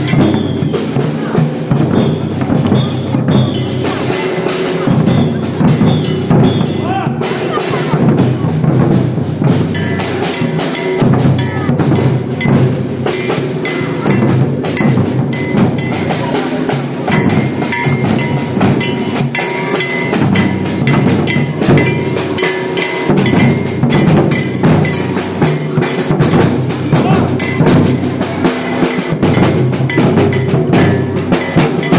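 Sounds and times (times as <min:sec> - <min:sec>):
ringing metal bell: 0:00.0 - 0:01.1, 0:01.8 - 0:06.9, 0:09.5 - 0:31.9
rapid snare drum strokes: 0:00.0 - 0:31.9.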